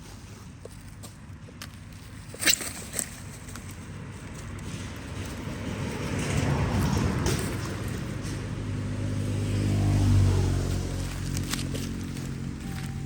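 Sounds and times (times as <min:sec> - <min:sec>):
vehicle engine approaching: 0:00.0 - 0:13.0.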